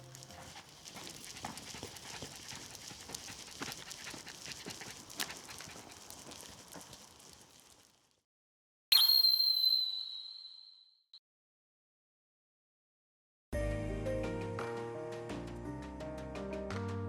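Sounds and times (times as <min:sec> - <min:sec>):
dog claws clicking: 0:00.0 - 0:07.9.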